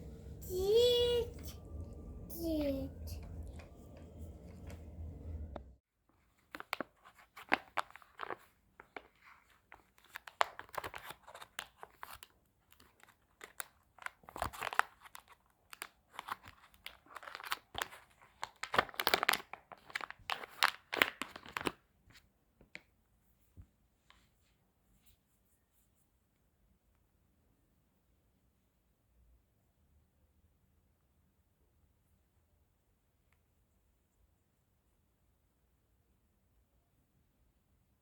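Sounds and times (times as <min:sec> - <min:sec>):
plastic packaging crinkling and tearing: 0:06.4 - 0:21.8.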